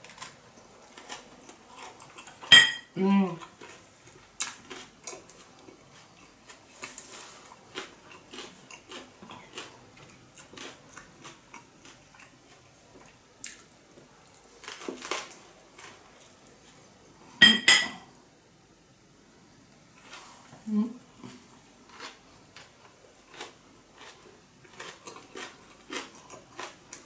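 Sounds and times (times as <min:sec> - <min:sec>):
person chewing: 0:00.0 - 0:02.5, 0:03.4 - 0:16.7, 0:21.2 - 0:27.0.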